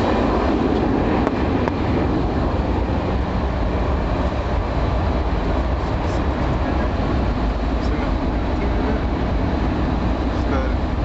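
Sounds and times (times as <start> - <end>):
airliner cabin engine roar: 0.0 - 11.0.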